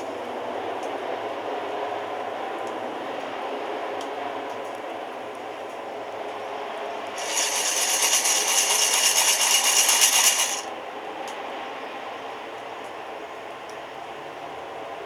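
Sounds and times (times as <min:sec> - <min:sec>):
coffee beans rattling in roaster: 0:07.2 - 0:10.7
steady rushing background: 0:07.2 - 0:10.7.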